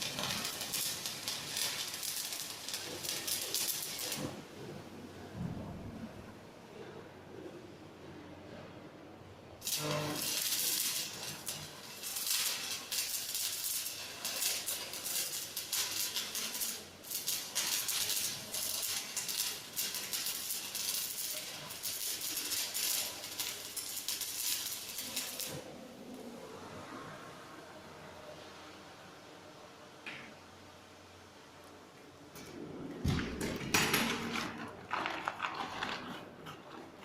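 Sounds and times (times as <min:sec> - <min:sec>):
arc welding crackling sizzle: 0:00.0 - 0:05.4, 0:09.6 - 0:26.4.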